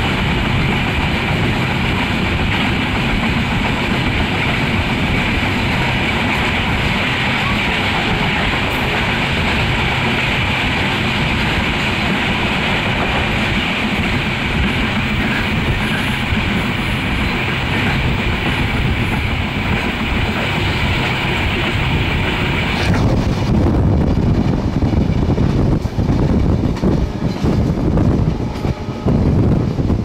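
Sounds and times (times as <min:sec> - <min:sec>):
train wheels rumbling and hissing: 0:00.0 - 0:30.0.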